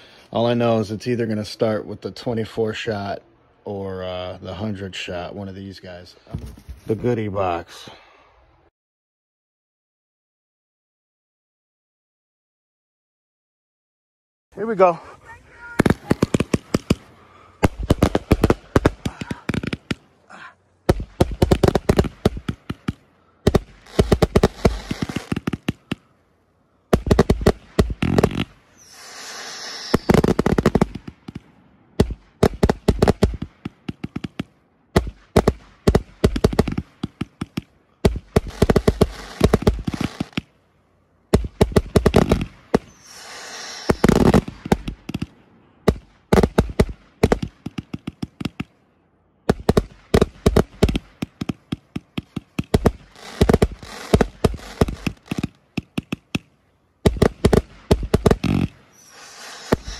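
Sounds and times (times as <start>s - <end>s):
fireworks cracking and popping: 14.6s - 26.1s, 26.9s - 40.6s, 41.3s - 48.8s, 49.4s - 59.9s
hissing crackle of fireworks: 14.6s - 40.6s, 41.3s - 48.8s, 49.5s - 59.9s.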